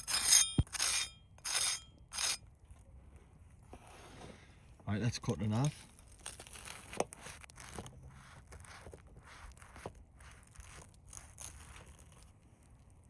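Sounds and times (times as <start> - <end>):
knife sawing through bread roll: 6.4 - 12.2.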